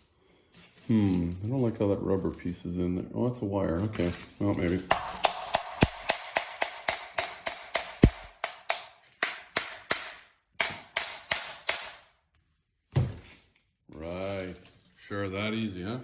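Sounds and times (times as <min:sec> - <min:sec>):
hammer tapping on metal: 0:04.9 - 0:12.0.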